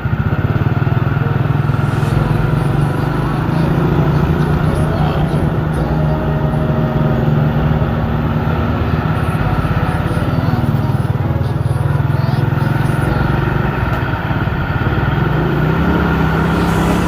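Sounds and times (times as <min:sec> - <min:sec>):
truck engine pulsing: 0:00.0 - 0:17.0.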